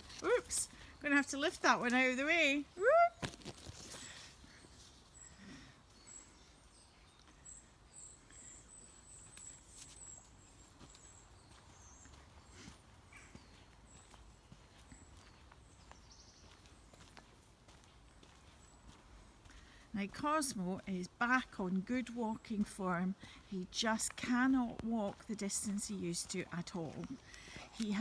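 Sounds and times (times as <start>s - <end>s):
footsteps through undergrowth: 3.1s - 5.4s, 9.2s - 19.7s.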